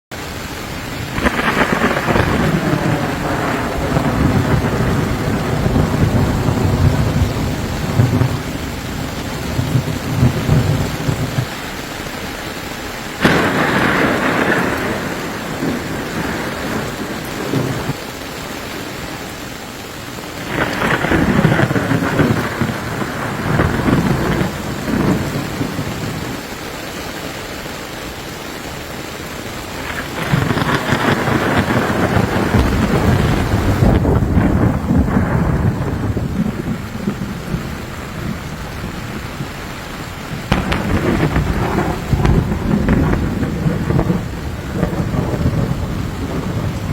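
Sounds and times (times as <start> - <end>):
steady rain: 0.1 - 46.9
thunder rumbling: 0.3 - 12.2, 13.1 - 18.9, 20.4 - 26.8, 29.6 - 46.9
thunder crack: 1.0 - 11.6, 13.2 - 18.0, 20.4 - 26.4, 29.8 - 46.9.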